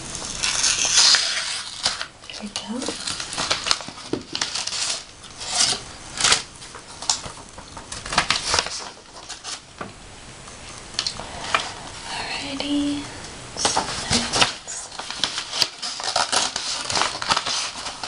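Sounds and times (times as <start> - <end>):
paper rustling: 0.0 - 9.7, 13.6 - 18.0.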